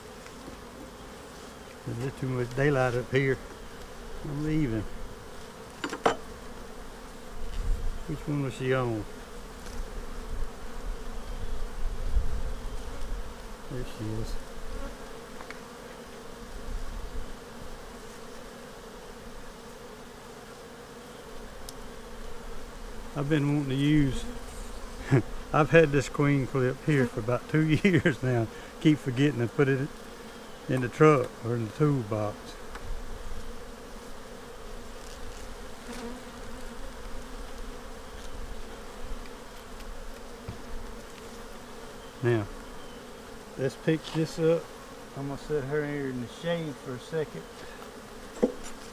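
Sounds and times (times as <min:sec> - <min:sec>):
honeybees buzzing: 0:00.0 - 0:48.9.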